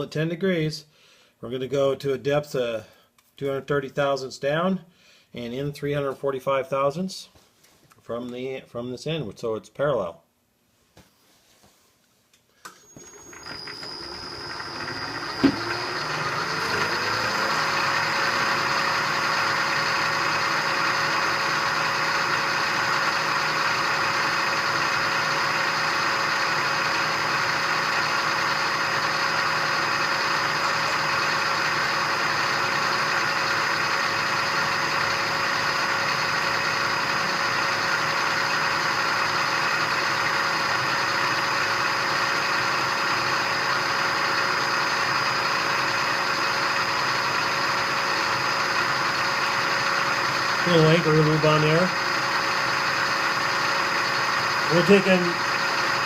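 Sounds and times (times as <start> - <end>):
milling machine spindle whining: 12.7 - 56.0.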